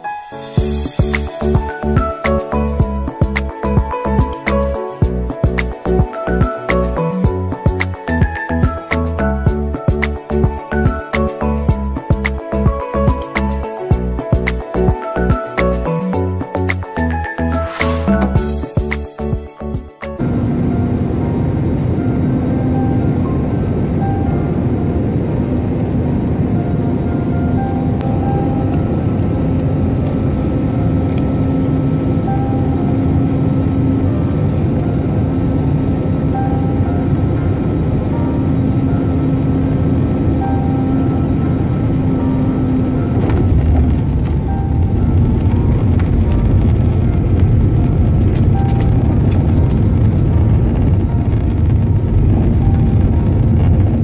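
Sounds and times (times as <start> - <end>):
low engine hum: 0.6 - 54.0
rush of airflow in cabin: 20.2 - 54.0.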